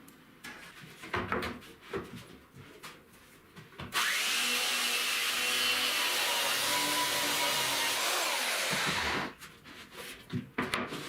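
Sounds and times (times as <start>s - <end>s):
power tool running: 4.0s - 9.4s.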